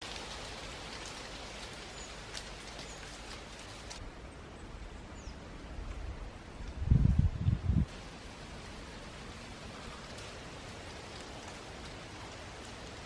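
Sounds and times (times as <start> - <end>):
wood fire crackling and popping: 0.0 - 4.0, 6.6 - 13.0.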